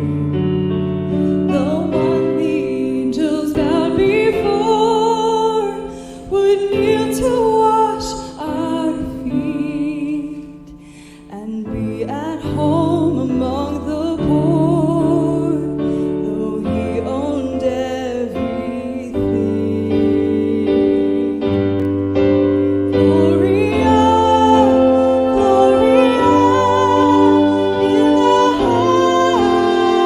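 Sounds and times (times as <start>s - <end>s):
piano: 0.0s - 30.0s
woman singing a hymn: 1.4s - 21.9s, 22.7s - 30.0s
sustained melodic instrument: 19.7s - 30.0s.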